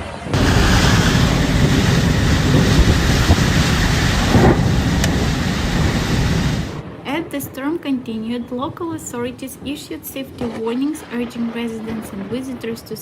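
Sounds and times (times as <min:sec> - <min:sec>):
heavy rain: 0:00.0 - 0:07.0
wind buffeting microphone: 0:00.2 - 0:13.0.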